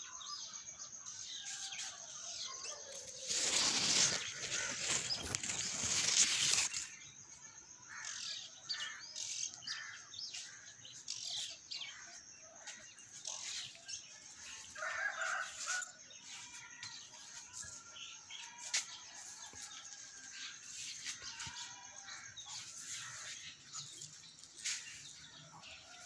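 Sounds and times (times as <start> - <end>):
small birds chirping: 0.0 - 26.0
rustling noise: 2.9 - 7.0, 18.5 - 25.3.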